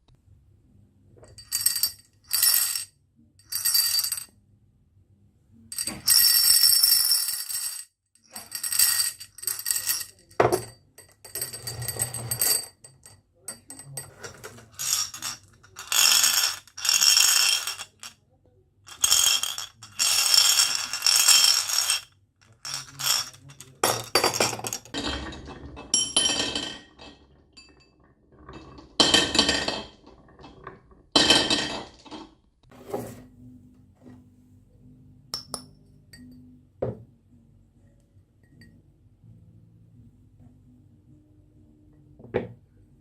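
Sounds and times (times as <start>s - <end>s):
marbles rattling down wooden run: 6.1s - 7.8s, 14.3s - 18.1s, 18.9s - 25.0s.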